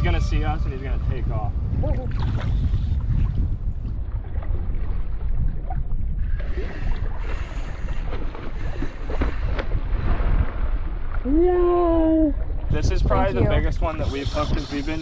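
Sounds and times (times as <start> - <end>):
water hissing: 0.0 - 3.2, 13.8 - 15.0
water rushing around boat: 0.0 - 15.0
wind buffeting microphone: 0.0 - 15.0.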